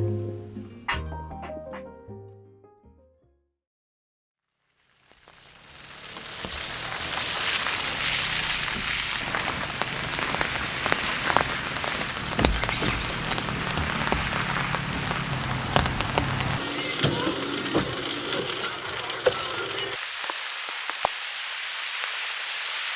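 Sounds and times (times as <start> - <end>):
heavy rain pouring: 5.0 - 22.9.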